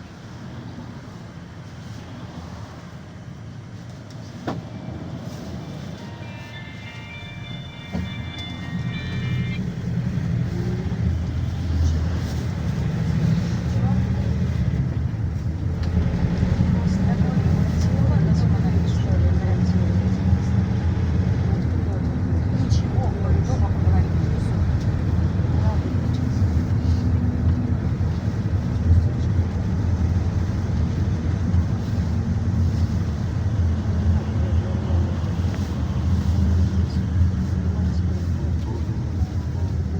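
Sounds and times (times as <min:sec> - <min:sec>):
minibus engine rumble: 0:00.0 - 0:39.9
high whine: 0:05.2 - 0:11.9.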